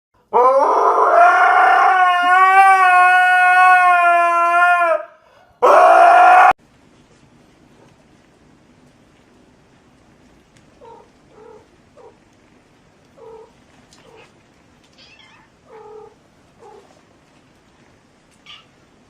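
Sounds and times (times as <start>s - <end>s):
cat meowing: 14.9s - 17.0s, 18.4s - 18.8s.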